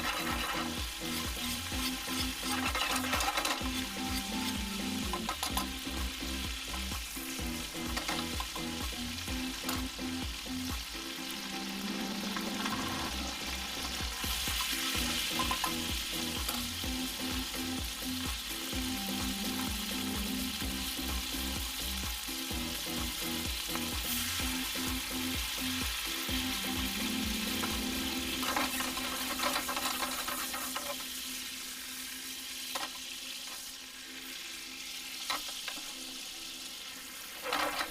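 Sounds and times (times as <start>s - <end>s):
background music: 0.0s - 30.2s
food sizzling: 0.0s - 37.9s.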